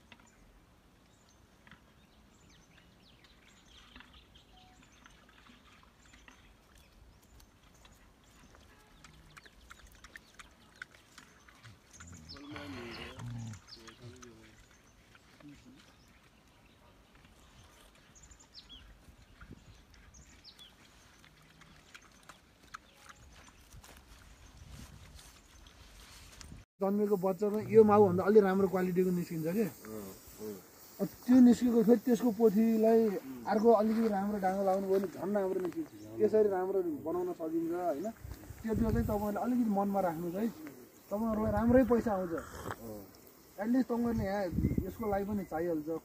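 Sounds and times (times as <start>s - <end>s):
small birds chirping: 0.0s - 26.4s, 27.1s - 46.0s
faint ticks and rustles: 0.0s - 26.6s, 27.2s - 46.0s
faint bird chirps: 1.1s - 21.3s.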